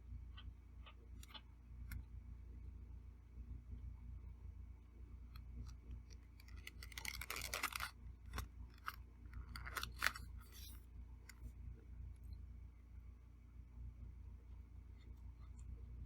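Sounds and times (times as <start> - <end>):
crackly scraping: 5.4 - 11.6.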